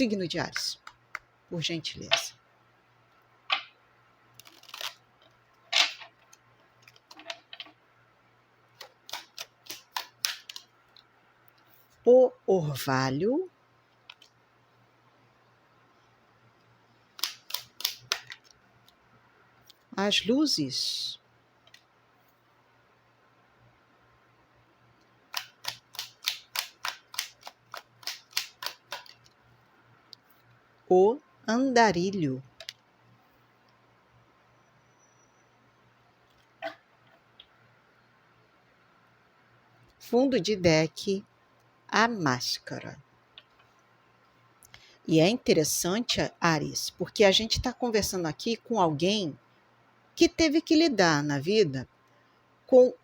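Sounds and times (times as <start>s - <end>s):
cards snapping and slapping: 8.8s - 10.6s, 17.2s - 18.4s, 25.3s - 29.2s.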